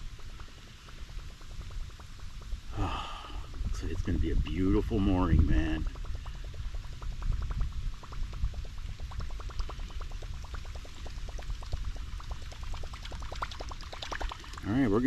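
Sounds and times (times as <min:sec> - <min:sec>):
low rumble: 0:00.0 - 0:15.0
water gurgling and splashing: 0:03.5 - 0:15.0.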